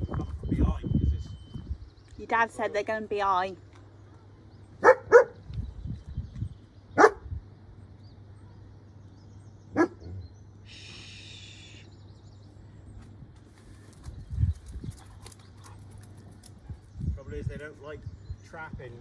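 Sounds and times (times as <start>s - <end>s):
dog barking: 4.8s - 5.4s, 7.0s - 7.2s, 9.8s - 10.1s.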